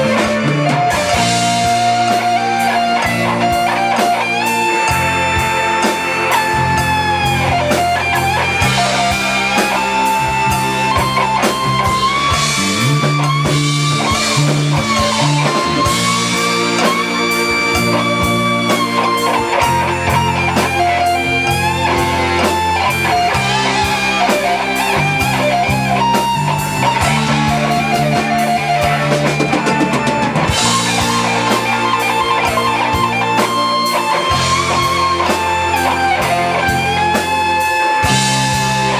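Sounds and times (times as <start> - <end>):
bass guitar: 0.0 - 38.9
drum kit: 0.0 - 38.9
electric guitar lead: 0.0 - 38.9.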